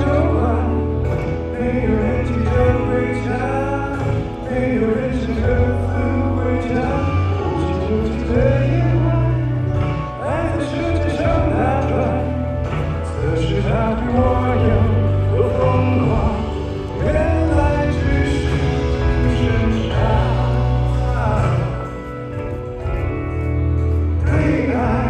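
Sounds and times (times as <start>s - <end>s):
band with heavy bass: 0.0s - 25.0s
man singing: 0.0s - 25.0s.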